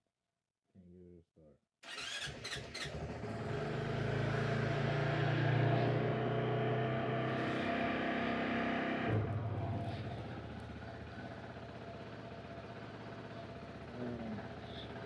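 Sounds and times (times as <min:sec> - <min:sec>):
motorcycle engine starting and running: 0:01.8 - 0:15.0.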